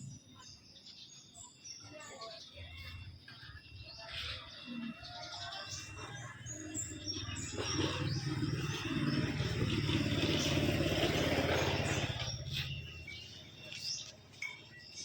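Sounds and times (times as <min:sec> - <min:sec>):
small birds chirping: 0:00.0 - 0:15.0
vehicle engine passing by: 0:06.2 - 0:13.7.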